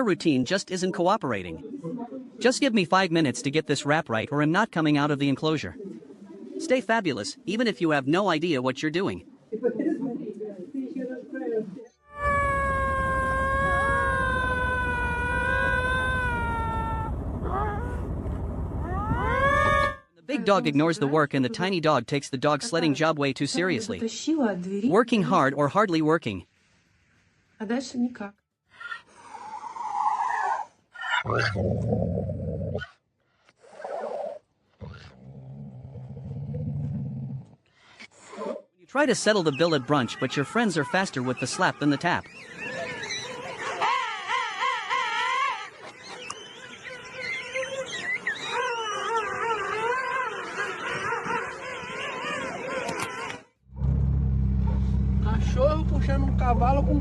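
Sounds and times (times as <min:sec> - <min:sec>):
animal wailing call: 0:12.0 - 0:18.0, 0:18.8 - 0:20.0, 0:42.6 - 0:53.4
low rough animal growling: 0:31.1 - 0:32.9, 0:34.7 - 0:37.6.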